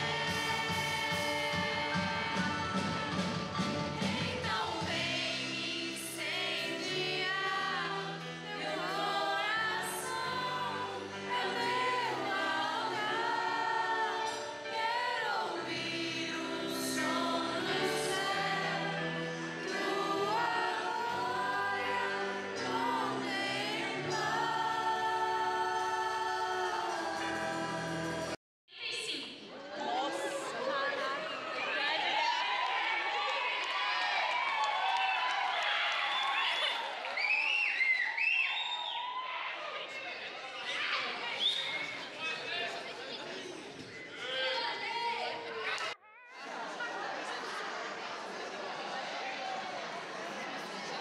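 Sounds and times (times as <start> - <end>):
group singing worship music: 0.0 - 28.4.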